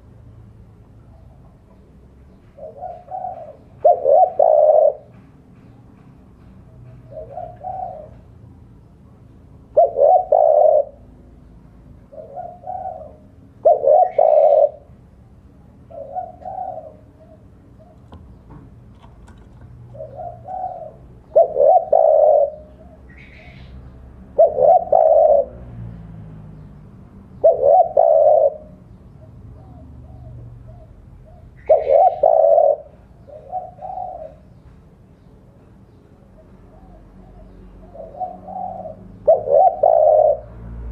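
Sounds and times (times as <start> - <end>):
dove cooing: 2.5 - 5.2, 7.0 - 8.4, 9.5 - 11.4, 12.0 - 15.0, 15.8 - 18.4, 19.0 - 25.7, 27.4 - 34.7, 36.3 - 40.9.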